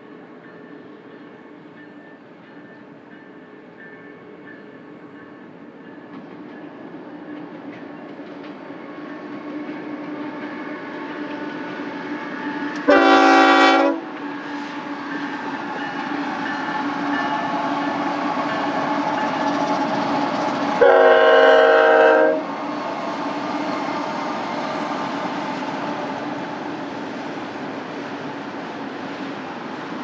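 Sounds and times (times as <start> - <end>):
passing train running noise: 0.0 - 30.0
locomotive air horn: 10.3 - 15.8, 20.8 - 22.6.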